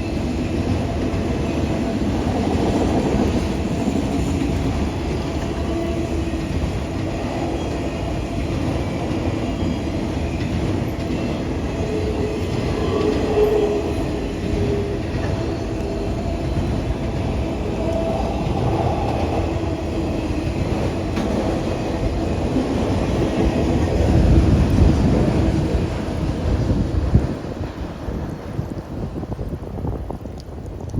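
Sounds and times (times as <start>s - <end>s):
train wheels rumbling on rails: 0.0s - 30.9s.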